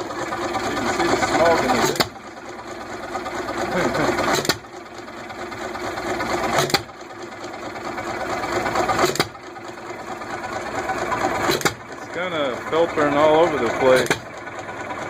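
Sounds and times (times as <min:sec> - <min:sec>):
engine firing with sharp bangs: 0:00.0 - 0:02.3, 0:03.6 - 0:04.9, 0:05.9 - 0:09.9, 0:10.7 - 0:15.0
engine clattering while coasting: 0:00.0 - 0:15.0.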